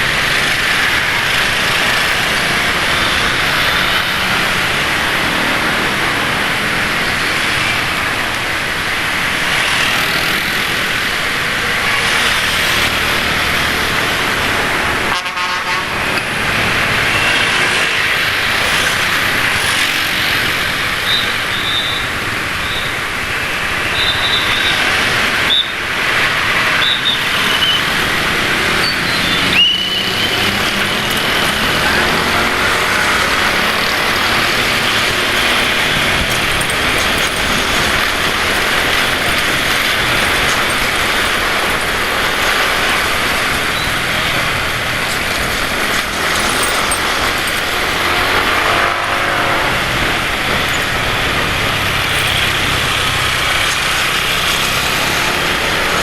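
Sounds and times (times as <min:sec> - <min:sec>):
road traffic rush: 0:00.0 - 0:56.0
motorcycle engine revving: 0:26.2 - 0:56.0
short high squeal: 0:28.8 - 0:30.6.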